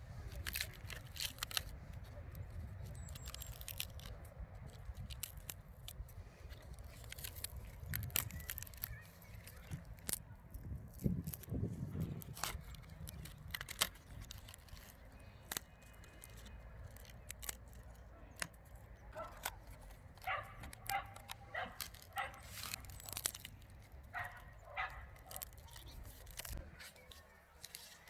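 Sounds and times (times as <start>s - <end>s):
sharp clicks and crackles: 0.1s - 28.0s
distant dog barking: 20.2s - 22.5s, 24.1s - 25.5s.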